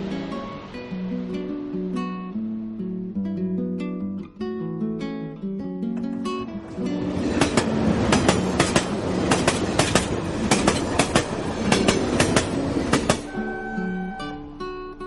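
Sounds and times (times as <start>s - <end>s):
train wheels clattering over rail joints: 6.7s - 13.3s.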